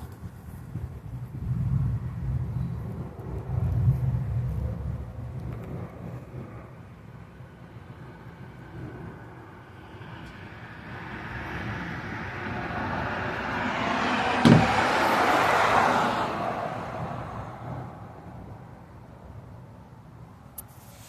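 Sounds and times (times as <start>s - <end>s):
car tyres hissing on wet road: 20.7s - 21.0s.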